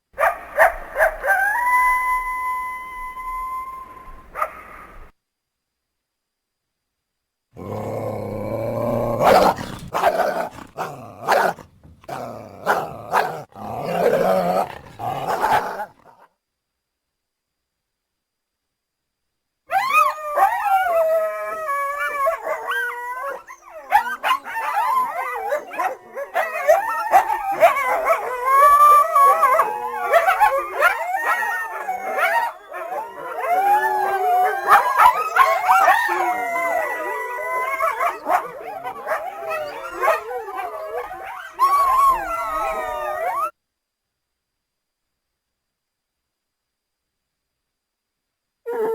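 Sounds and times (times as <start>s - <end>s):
coyotes howling and yipping: 0.2s - 5.1s, 7.6s - 16.0s, 19.7s - 43.6s.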